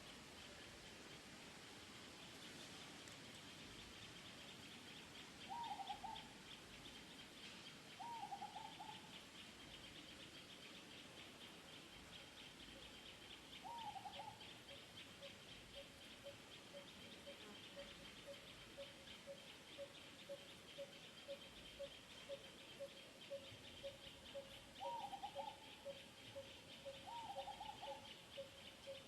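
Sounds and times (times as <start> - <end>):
faint bird hooting calls: 5.4 - 6.4, 8.0 - 9.2, 13.6 - 29.0.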